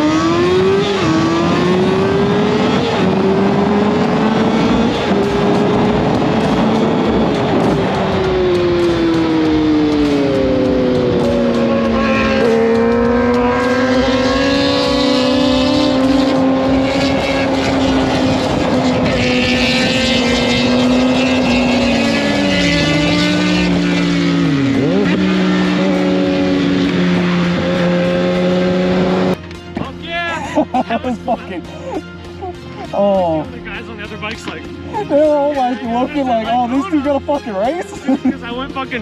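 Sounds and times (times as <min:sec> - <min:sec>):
motorcycle engine at high revs: 0:00.0 - 0:29.4.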